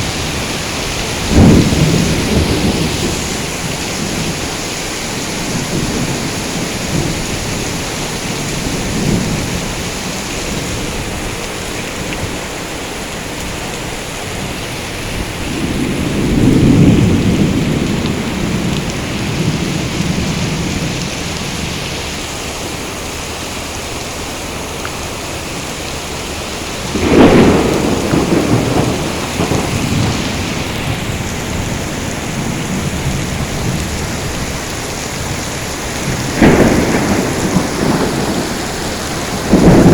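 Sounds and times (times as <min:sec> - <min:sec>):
thunder clap: 0:00.0 - 0:04.6, 0:15.2 - 0:24.0, 0:25.1 - 0:39.9
heavy rain falling: 0:00.0 - 0:39.9
thunder rumbling: 0:00.0 - 0:39.9.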